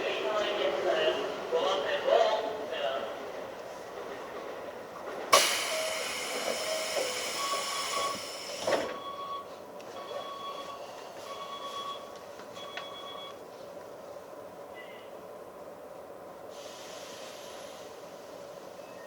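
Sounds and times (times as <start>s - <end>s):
short beeps: 5.7s - 13.4s.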